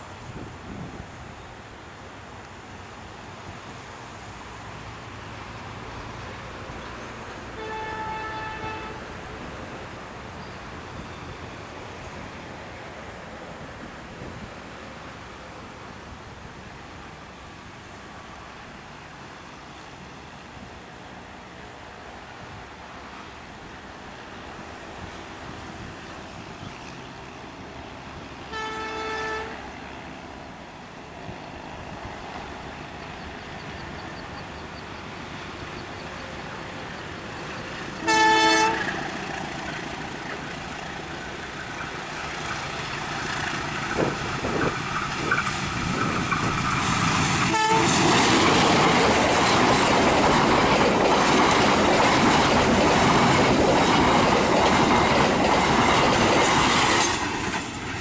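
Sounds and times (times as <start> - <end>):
train wheels roaring on rails: 0.0 - 58.0
locomotive horn blasts: 7.5 - 9.1, 28.5 - 29.6, 38.0 - 39.0, 47.4 - 48.0.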